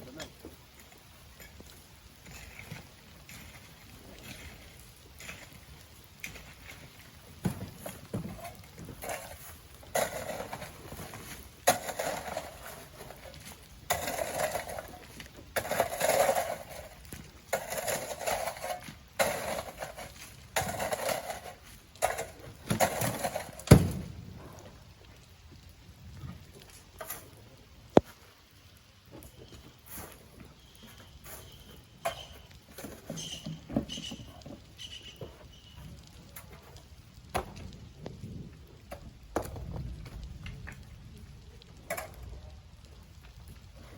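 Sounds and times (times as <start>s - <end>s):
shovel scraping and pouring sand: 2.2s - 23.8s, 29.8s - 36.7s.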